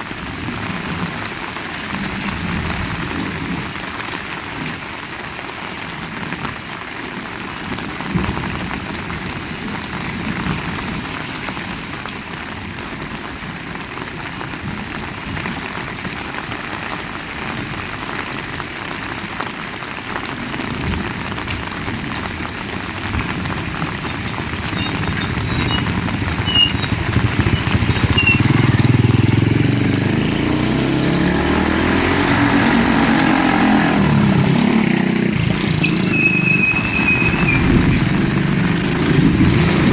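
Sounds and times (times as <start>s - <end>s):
heavy rain falling: 0.0s - 39.9s
vehicle engine approaching: 22.8s - 39.9s.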